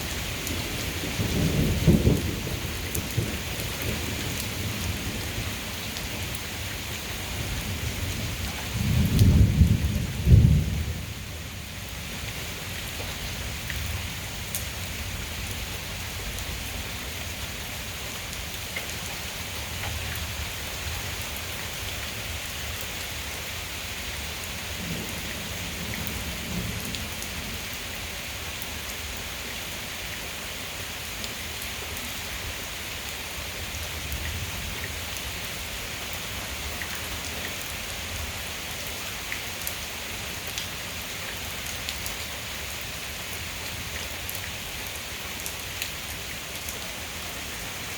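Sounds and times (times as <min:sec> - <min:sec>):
heavy rain falling: 0:00.0 - 0:47.9
low thunder rumble: 0:07.7 - 0:11.3.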